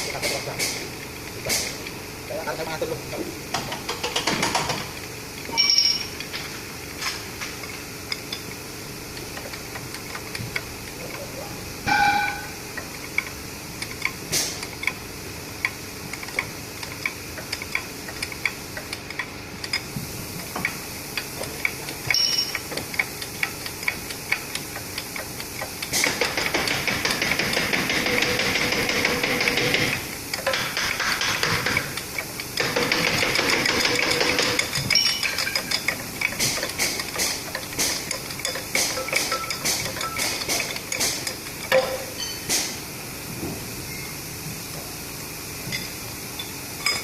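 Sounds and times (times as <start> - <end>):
ringing metal clanks: 5.5 - 6.1, 11.9 - 12.6, 22.1 - 22.6, 34.9 - 35.9, 41.8 - 42.4
metal tools clinking on steel: 5.5 - 6.3, 22.1 - 22.6, 33.6 - 42.5, 45.7 - 47.0.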